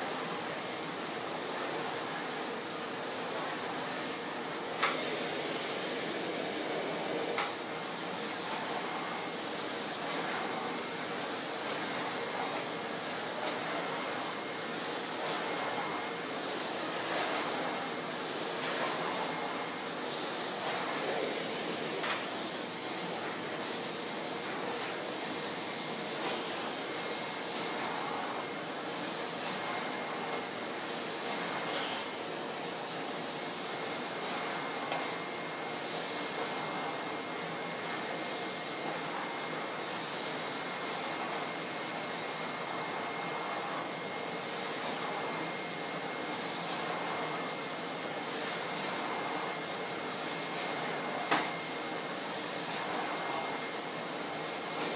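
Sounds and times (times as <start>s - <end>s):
vacuum cleaner running: 0.0s - 54.9s.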